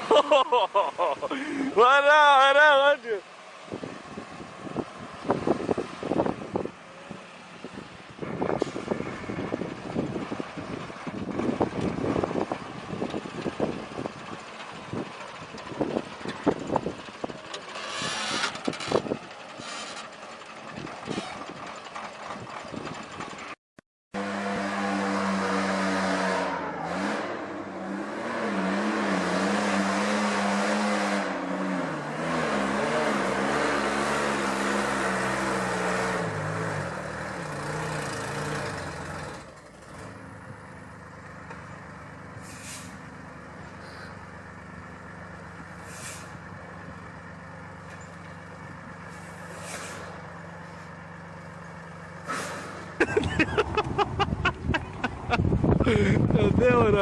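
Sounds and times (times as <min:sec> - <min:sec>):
heavy truck engine running: 0:03.7 - 0:23.6, 0:34.3 - 0:56.4
air-brake hisses: 0:42.4 - 0:43.0, 0:45.7 - 0:46.4, 0:49.1 - 0:50.9, 0:52.2 - 0:53.0.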